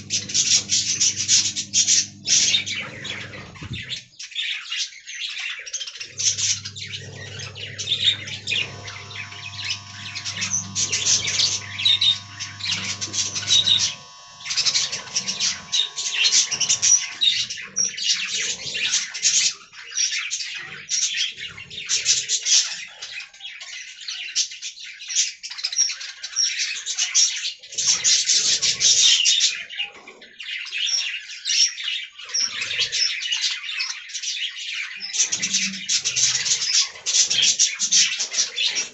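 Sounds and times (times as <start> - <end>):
faint steady tones: 0.0 - 3.9, 6.1 - 17.4
low hum: 6.2 - 17.4.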